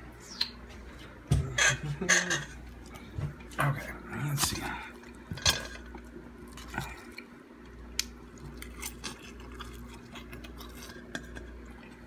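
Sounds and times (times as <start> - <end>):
faint steady hum: 0.0 - 12.0
person chewing food: 2.5 - 12.0.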